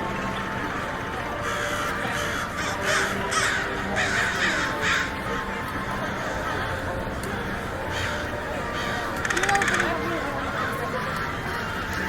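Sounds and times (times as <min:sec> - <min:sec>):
steady background noise: 0:00.0 - 0:12.0
bird harsh calls: 0:07.9 - 0:10.7.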